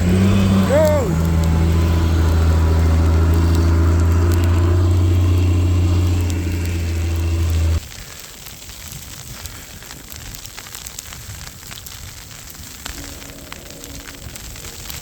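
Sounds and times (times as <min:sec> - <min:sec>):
vehicle engine idling: 0:00.0 - 0:07.8.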